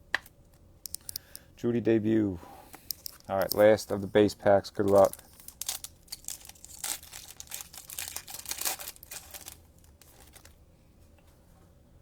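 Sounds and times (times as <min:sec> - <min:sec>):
plastic wrapper tearing and crinkling: 0:04.8 - 0:10.5.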